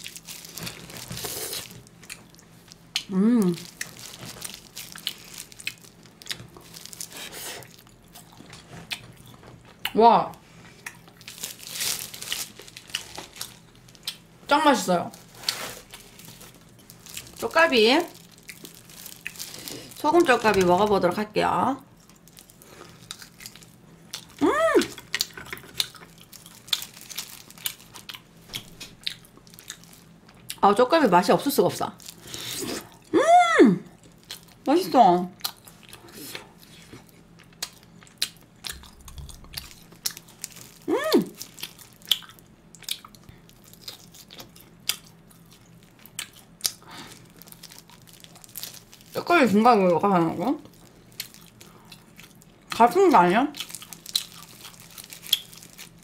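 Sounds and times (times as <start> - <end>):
person chewing: 0.0 - 9.9, 18.2 - 20.0, 21.9 - 30.6, 35.4 - 49.1, 50.6 - 52.8, 53.6 - 56.0
person humming: 3.1 - 3.6, 24.4 - 25.0, 40.9 - 41.4.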